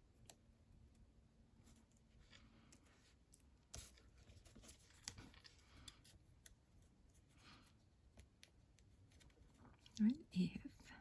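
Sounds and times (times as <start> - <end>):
paper rustling and clicks: 2.3 - 6.6.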